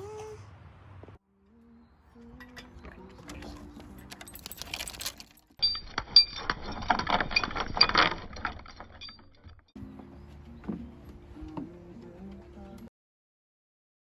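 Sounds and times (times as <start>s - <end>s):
metallic jangling and clinking: 3.4s - 9.7s.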